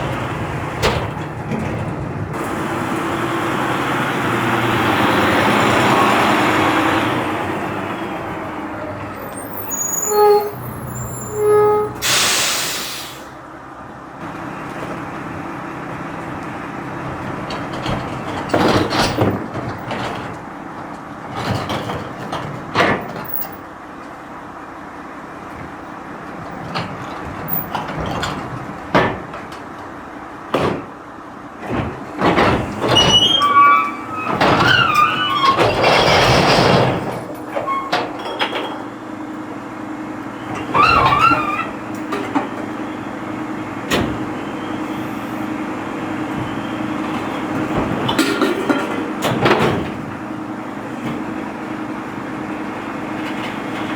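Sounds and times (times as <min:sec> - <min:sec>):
knocks and clanks: 0:00.0 - 0:02.6, 0:17.4 - 0:23.6, 0:26.4 - 0:29.9, 0:30.5 - 0:31.0, 0:31.6 - 0:39.0, 0:46.3 - 0:50.2
garbage truck running: 0:00.0 - 0:53.9
brief squeals: 0:09.1 - 0:13.2, 0:40.6 - 0:41.8
loud hiss of released air: 0:12.0 - 0:13.4.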